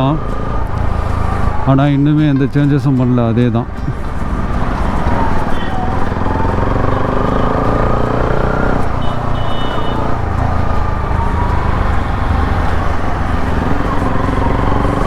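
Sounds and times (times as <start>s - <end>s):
motorcycle engine revving: 3.8s - 15.0s.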